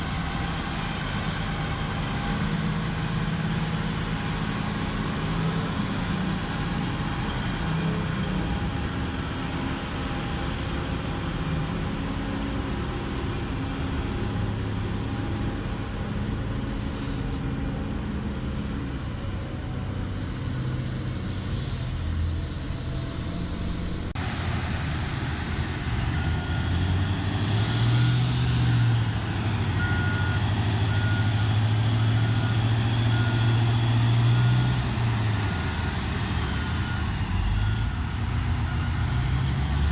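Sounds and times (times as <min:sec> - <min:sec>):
haul truck diesel engine: 0:00.0 - 0:39.9
reversing alarm beeping: 0:22.6 - 0:24.1, 0:29.8 - 0:39.4.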